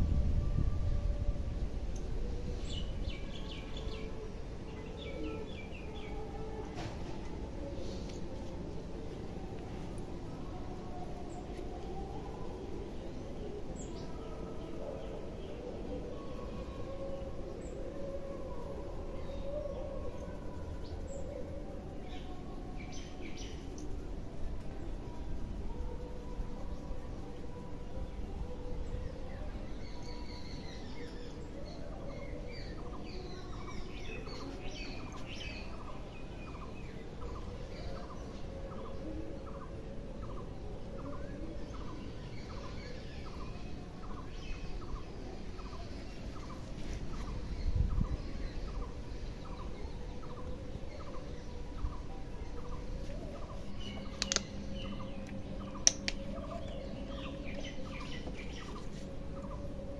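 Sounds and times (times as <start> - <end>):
birds chirping: 40.2 - 59.9
sharp clicks: 54.2 - 54.6, 55.2 - 56.3.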